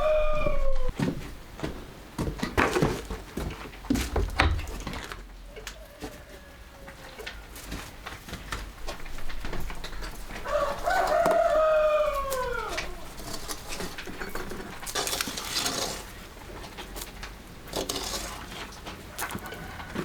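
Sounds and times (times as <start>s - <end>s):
rooster crowing: 0.0s - 1.0s, 5.5s - 7.7s, 10.3s - 13.2s, 19.1s - 20.0s.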